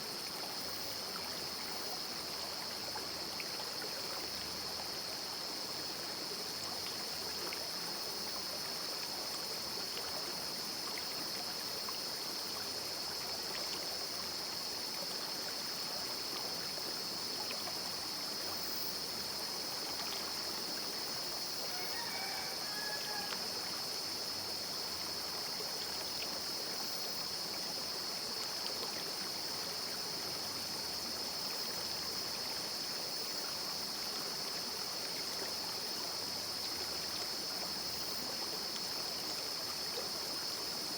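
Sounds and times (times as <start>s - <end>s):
steady high-pitched hiss: 0.0s - 40.9s.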